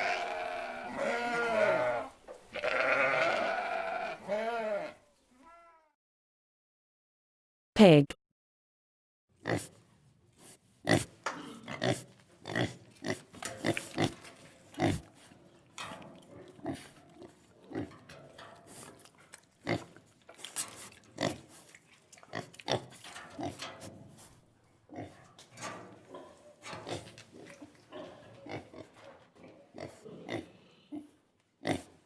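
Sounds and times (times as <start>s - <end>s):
pig grunting: 0.0s - 5.0s, 10.9s - 15.3s, 26.1s - 32.0s.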